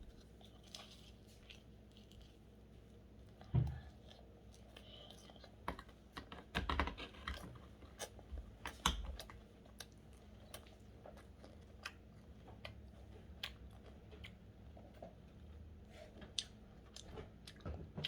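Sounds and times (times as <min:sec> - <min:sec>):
chewing and biting: 0:06.6 - 0:18.0.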